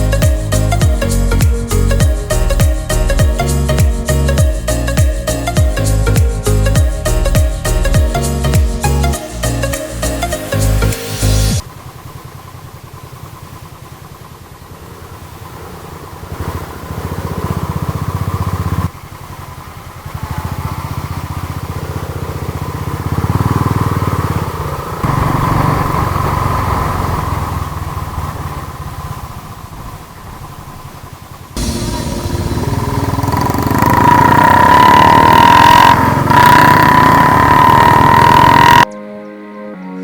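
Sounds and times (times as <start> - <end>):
motorcycle engine running: 0.0 - 10.0, 10.7 - 38.9.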